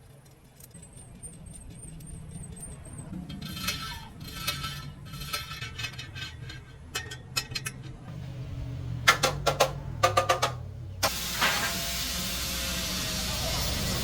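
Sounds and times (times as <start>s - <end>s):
metallic clinking and rattling: 0.0s - 8.2s
low steady hum: 0.0s - 12.8s.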